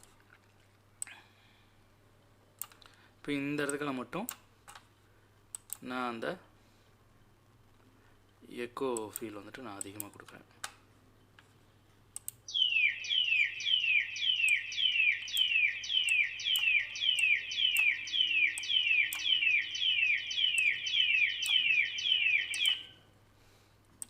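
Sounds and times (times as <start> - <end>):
echoing high bird chirps: 12.5 - 23.1.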